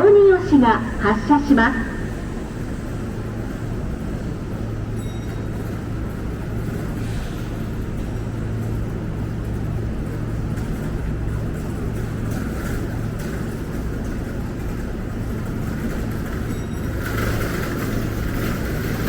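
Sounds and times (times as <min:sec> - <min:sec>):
electric train hum and rumble: 0:00.0 - 0:19.0.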